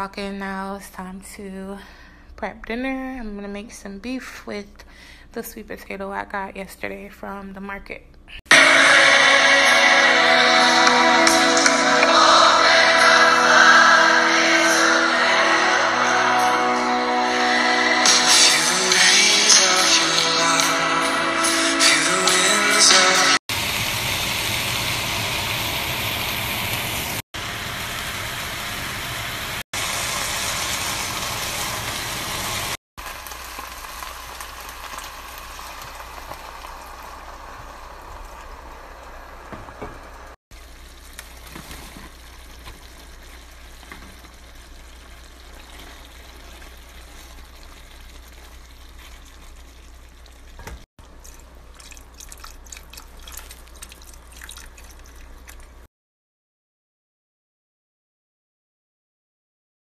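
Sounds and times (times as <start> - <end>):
beef sizzling in a pot: 23.5 - 50.9
stock pouring and splashing: 32.4 - 55.9
liquid bubbling: 34.4 - 55.9.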